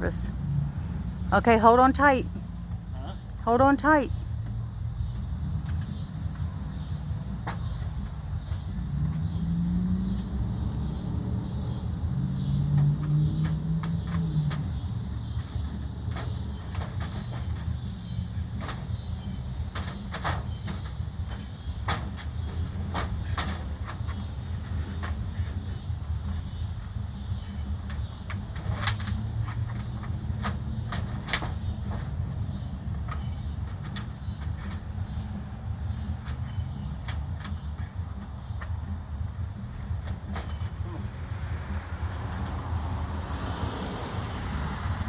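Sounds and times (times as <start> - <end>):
steady low rumble: 0.0 - 12.5
vinyl siding clicks and knocks: 15.4 - 26.9, 27.5 - 38.9.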